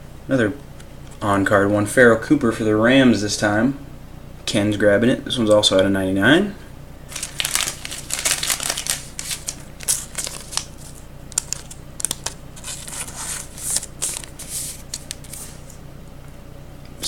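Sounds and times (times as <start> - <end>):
plastic sleeves crinkling: 7.1 - 15.8.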